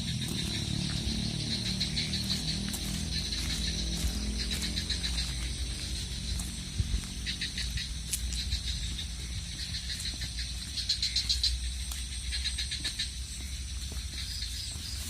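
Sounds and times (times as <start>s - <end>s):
low rumble of road traffic: 0.0s - 15.0s
rapid high chirping pulses: 0.0s - 15.0s.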